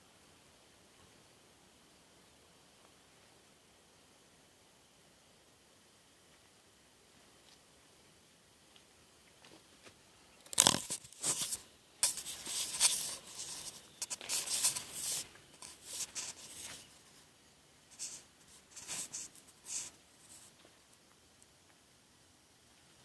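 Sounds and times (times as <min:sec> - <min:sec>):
rustling and crunching: 0:09.4 - 0:17.3, 0:17.9 - 0:20.8.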